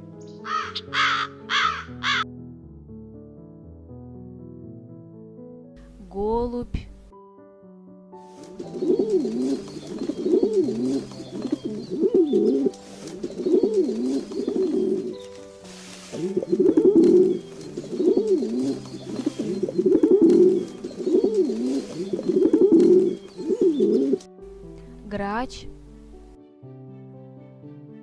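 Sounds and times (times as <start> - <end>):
soft background music: 0.0 - 28.0
pigeon cooing: 8.7 - 15.2, 16.2 - 24.2.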